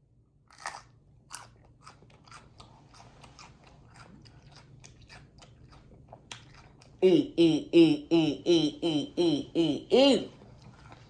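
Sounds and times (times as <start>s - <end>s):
crunchy pepper biting and chewing: 0.4s - 7.0s.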